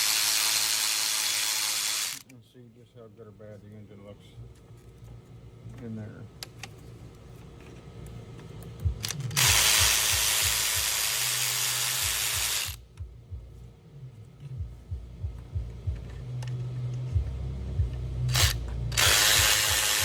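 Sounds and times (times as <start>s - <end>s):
knocks and clicks of handling: 14.4s - 18.8s.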